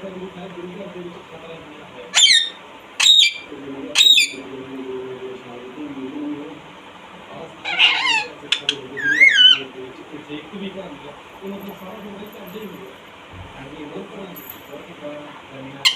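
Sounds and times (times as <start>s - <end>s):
parrot screeching: 2.1s - 4.4s, 7.6s - 9.7s.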